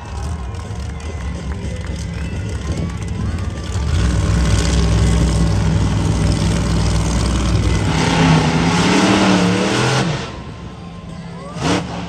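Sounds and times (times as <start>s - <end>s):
monster truck engine revving: 0.0s - 12.0s.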